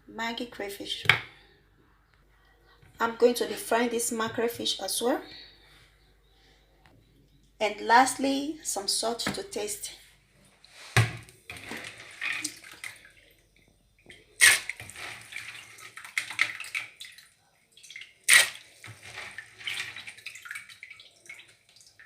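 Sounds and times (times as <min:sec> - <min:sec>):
water sloshing in a pot: 0:10.6 - 0:22.0
sharp splashes: 0:14.4 - 0:22.0.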